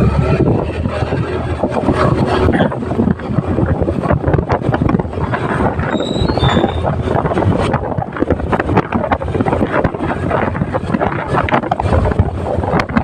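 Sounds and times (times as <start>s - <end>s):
motorcycle engine and road noise: 0.0s - 13.0s
wind buffeting microphone: 0.0s - 13.0s.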